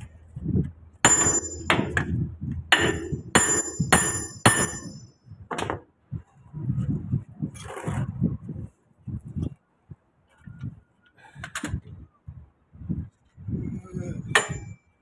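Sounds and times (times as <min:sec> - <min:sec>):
hammer blows on steel: 0:01.0 - 0:05.1.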